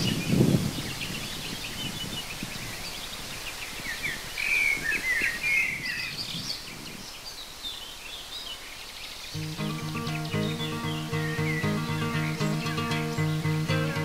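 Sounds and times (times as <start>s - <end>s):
songbirds chirping and trilling: 0.0s - 14.0s
faint outdoor hiss: 6.5s - 14.0s.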